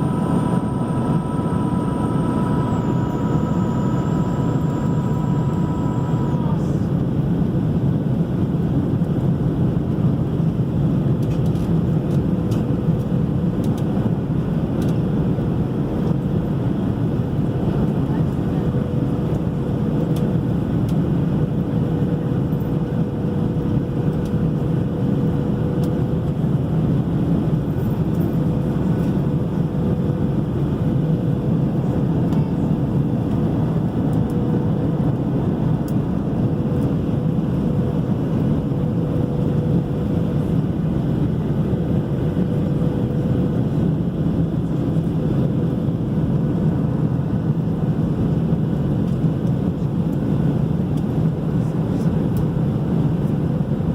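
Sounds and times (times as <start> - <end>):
faint steady hum: 0.0 - 7.0
airliner cabin engine drone: 0.0 - 53.9.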